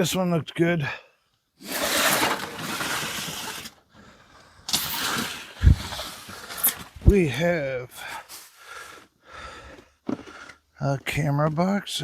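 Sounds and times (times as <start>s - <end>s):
rustling and scraping of box contents: 1.6s - 3.9s, 4.7s - 7.2s.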